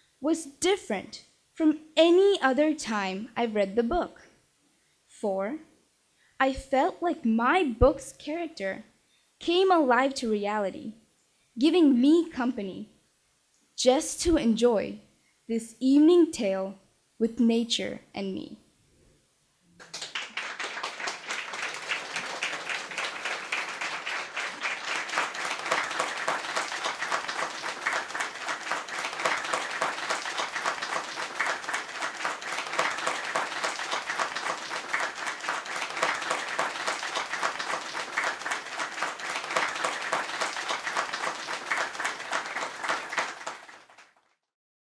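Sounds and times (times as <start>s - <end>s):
audience applauding: 19.8s - 44.2s.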